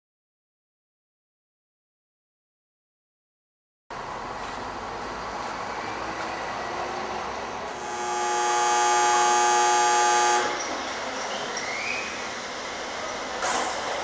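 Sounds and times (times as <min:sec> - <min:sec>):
electric train rumble and hiss: 0:03.9 - 0:14.0.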